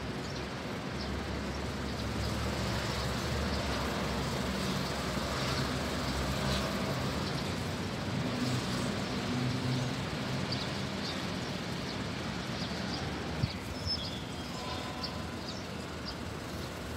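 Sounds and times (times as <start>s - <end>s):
low hum of vehicles: 0.0s - 16.9s
bird chirping: 12.6s - 16.3s.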